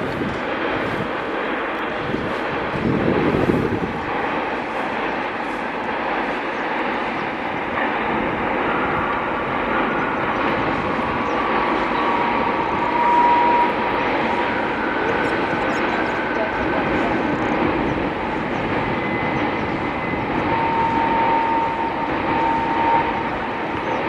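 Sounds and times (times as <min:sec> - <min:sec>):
train rumbling across bridge: 0:00.0 - 0:24.0
faint high whining tone: 0:08.7 - 0:24.0.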